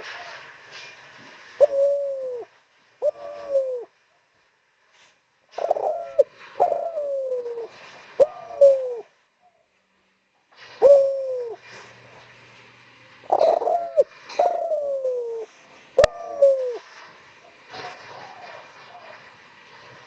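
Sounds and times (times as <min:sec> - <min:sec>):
dove cooing: 0:01.6 - 0:03.9, 0:05.5 - 0:09.1, 0:10.8 - 0:11.7, 0:13.3 - 0:16.9.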